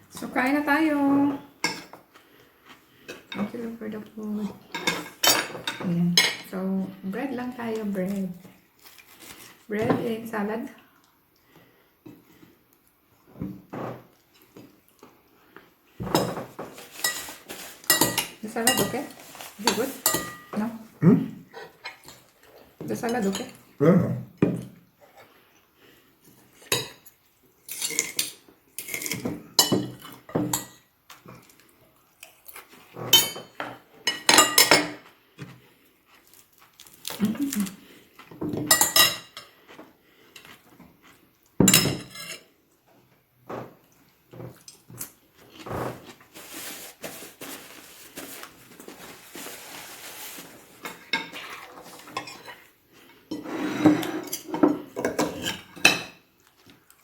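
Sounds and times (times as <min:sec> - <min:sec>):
cutlery clinking on plates: 0:16.0 - 0:20.6.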